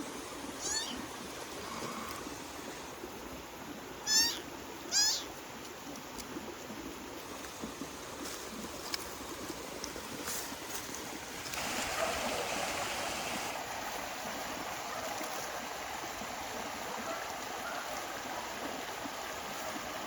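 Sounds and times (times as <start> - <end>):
kitten meowing: 0.6 - 1.1, 4.0 - 5.3.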